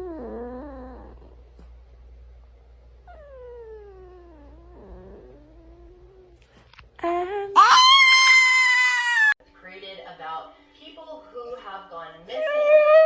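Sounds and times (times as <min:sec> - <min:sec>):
pet yowling: 0:07.6 - 0:09.4.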